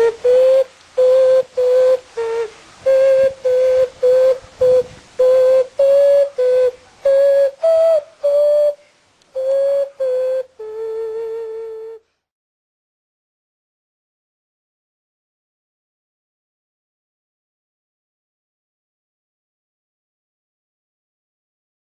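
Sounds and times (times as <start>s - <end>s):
clay whistle toots: 0.0s - 8.8s, 9.4s - 12.0s.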